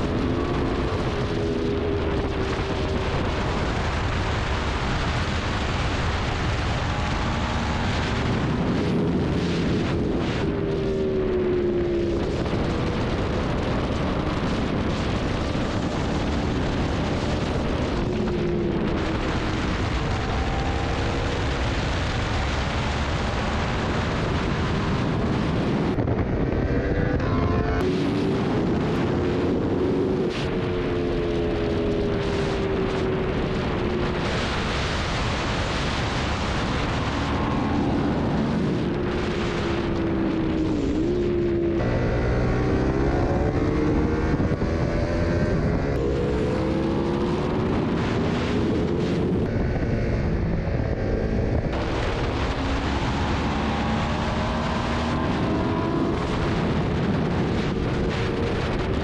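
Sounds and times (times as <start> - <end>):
motorcycle engine revving: 0.0 - 59.0
rushing wind: 0.0 - 59.0.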